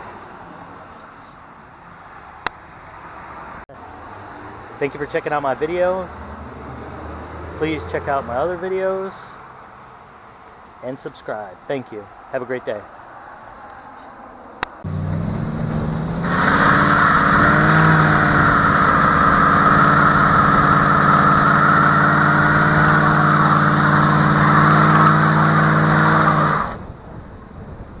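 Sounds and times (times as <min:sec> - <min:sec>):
car engine running under load: 0:14.7 - 0:28.0.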